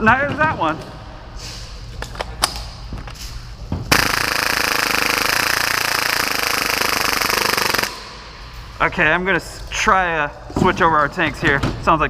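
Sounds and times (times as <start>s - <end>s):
airsoft pistol rapid-fire burst: 3.9s - 8.1s.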